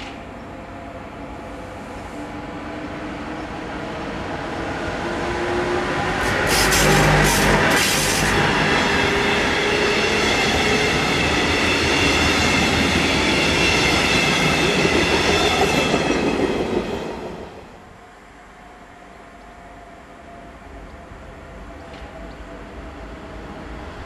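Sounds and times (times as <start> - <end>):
steel wheels rushing on rail: 0.0 - 17.9.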